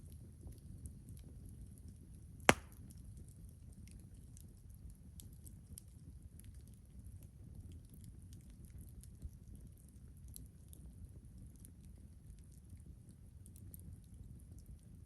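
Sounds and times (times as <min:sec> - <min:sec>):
sharp pop of burning wood: 0:02.5 - 0:02.8.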